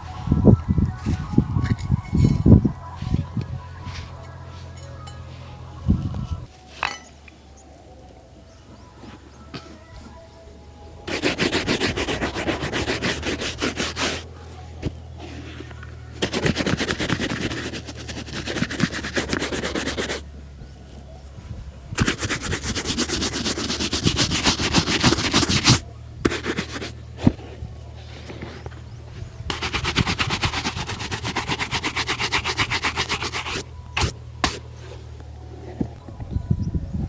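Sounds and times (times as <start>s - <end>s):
shoe polishing rubbing strokes: 11.1s - 14.3s, 15.2s - 20.2s, 22.0s - 28.7s, 29.5s - 35.0s.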